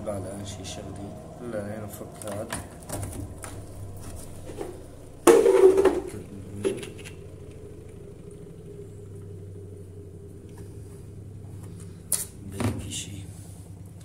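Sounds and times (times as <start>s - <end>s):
faint steady hum: 0.0s - 14.0s
loud plastic clatter: 4.5s - 7.1s.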